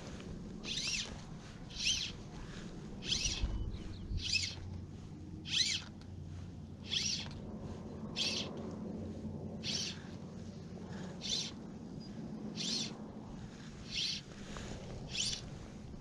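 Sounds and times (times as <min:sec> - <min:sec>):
bird calling: 0:00.6 - 0:01.1, 0:01.7 - 0:02.2, 0:03.0 - 0:04.7, 0:05.4 - 0:05.9, 0:06.8 - 0:07.3, 0:08.1 - 0:08.5, 0:09.6 - 0:10.1, 0:10.9 - 0:11.6, 0:12.6 - 0:13.0, 0:13.9 - 0:14.3, 0:15.1 - 0:15.5.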